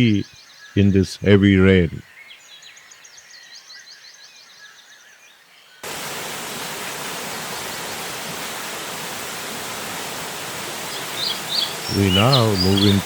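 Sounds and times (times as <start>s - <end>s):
heavy rain hissing: 5.8s - 13.0s
faint high chirping: 10.6s - 13.0s.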